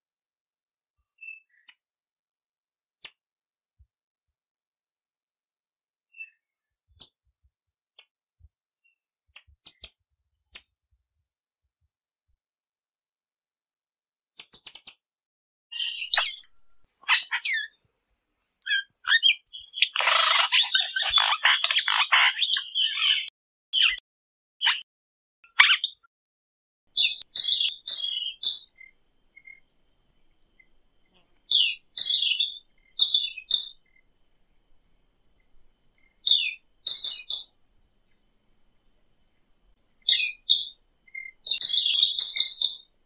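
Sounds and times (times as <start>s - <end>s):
bird chirps and phrases: 15.7s - 17.8s, 18.6s - 24.0s, 24.6s - 24.9s, 25.5s - 26.1s, 27.0s - 29.6s, 31.1s - 33.9s, 36.1s - 37.6s, 40.0s - 42.9s
loud chattering bird calls: 15.8s - 17.8s, 18.6s - 24.0s, 27.0s - 34.7s, 35.3s - 37.6s, 40.0s - 42.9s.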